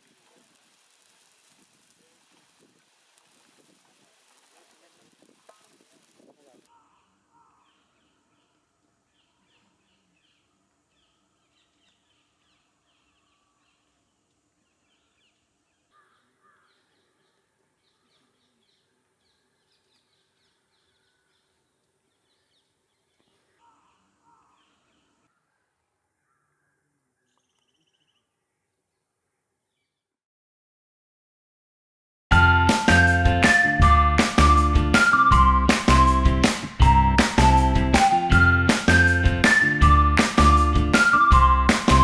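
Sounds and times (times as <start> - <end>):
faint bird chirps: 6.7 - 30.1.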